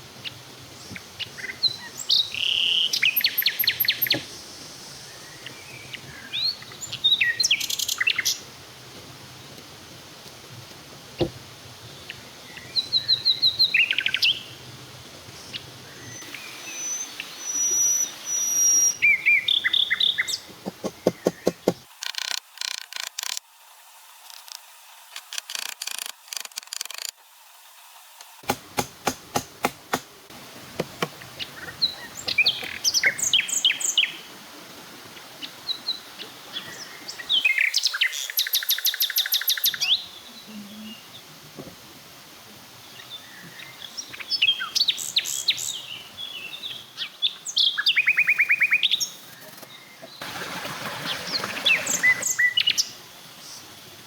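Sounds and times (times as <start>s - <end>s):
birds chirping and trilling: 0.8s - 8.4s, 15.4s - 21.8s, 31.2s - 34.2s, 51.0s - 53.7s
rapid clicking pulses: 20.5s - 21.9s.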